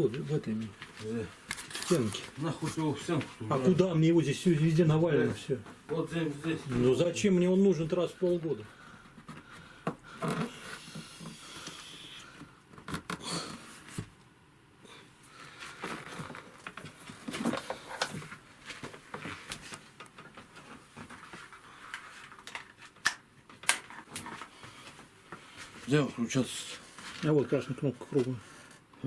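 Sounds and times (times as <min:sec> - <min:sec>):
objects being handled: 0:00.1 - 0:03.5, 0:15.6 - 0:26.0.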